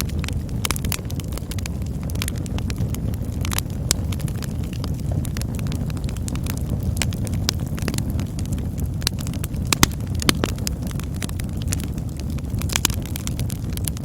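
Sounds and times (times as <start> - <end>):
burning wood crackling and popping: 0.0 - 14.0
low rumble of flames: 0.0 - 14.0.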